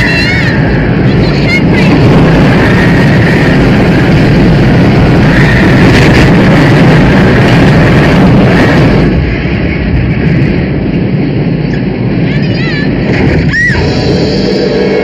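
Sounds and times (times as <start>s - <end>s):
rushing tornado wind: 0.0s - 15.0s.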